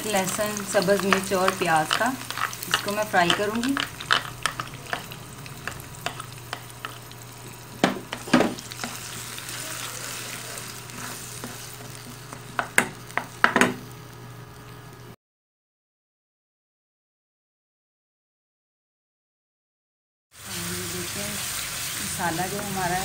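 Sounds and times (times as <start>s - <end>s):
spoon scraping and clacking pan: 0.0s - 13.5s
paste sizzling in hot oil: 0.0s - 14.0s, 20.4s - 23.0s.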